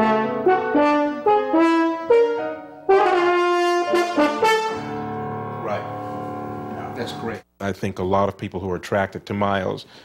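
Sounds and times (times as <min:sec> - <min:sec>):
french horn solo melody: 0:00.0 - 0:06.8.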